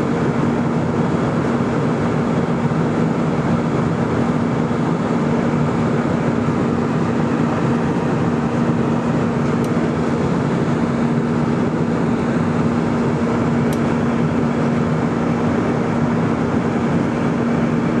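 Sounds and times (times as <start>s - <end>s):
jet engines drone in flight: 0.0s - 18.0s.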